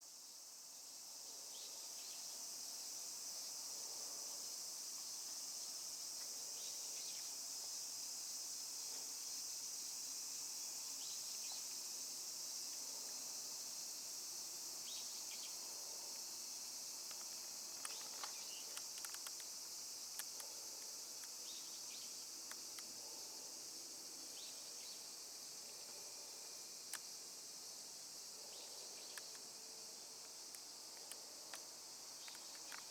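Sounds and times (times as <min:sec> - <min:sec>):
insects chirring: 0:00.1 - 0:32.9
faint clicks: 0:17.0 - 0:21.4, 0:29.1 - 0:29.5, 0:30.2 - 0:32.9.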